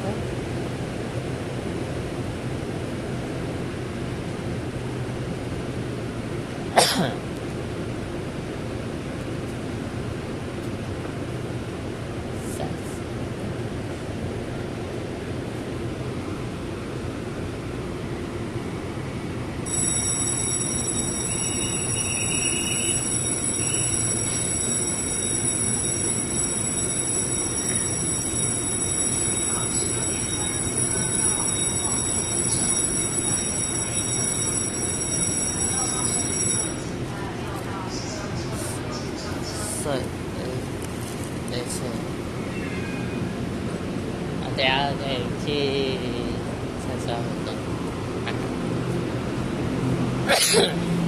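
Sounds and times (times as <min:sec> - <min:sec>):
train interior running noise: 0:00.0 - 0:51.0
person coughing: 0:06.8 - 0:07.2, 0:50.3 - 0:50.8.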